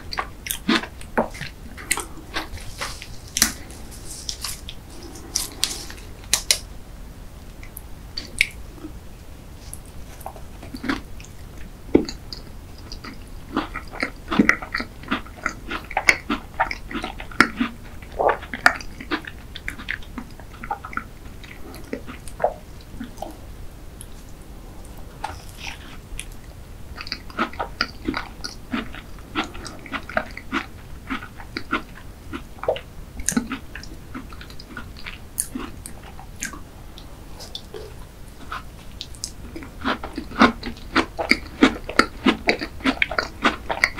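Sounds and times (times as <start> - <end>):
pastry crust crunching: 0.0 - 6.7
person chewing pastry: 0.0 - 6.7, 7.6 - 43.9.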